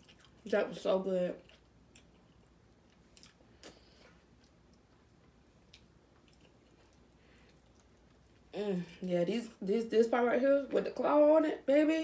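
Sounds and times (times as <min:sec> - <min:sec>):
soft chewing: 0:00.0 - 0:09.1.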